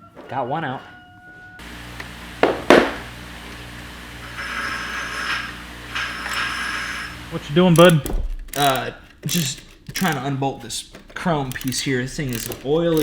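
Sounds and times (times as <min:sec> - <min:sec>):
steady low hum: 0:01.6 - 0:08.8
sharp metal clacks: 0:07.7 - 0:10.3, 0:11.4 - 0:13.0.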